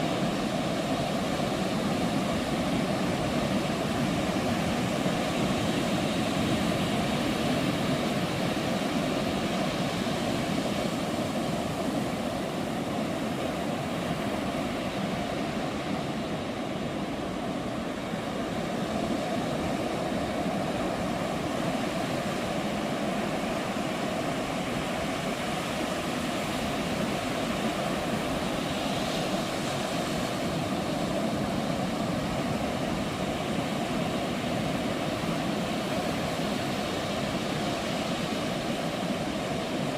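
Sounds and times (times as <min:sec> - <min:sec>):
ocean surf washing onto beach: 0:00.0 - 0:39.9.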